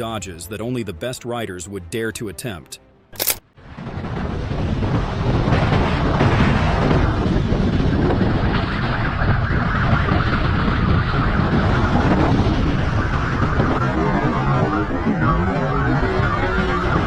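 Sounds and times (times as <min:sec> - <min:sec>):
wind rushing over microphone: 0:03.6 - 0:17.0
motorcycle running at speed: 0:04.9 - 0:17.0.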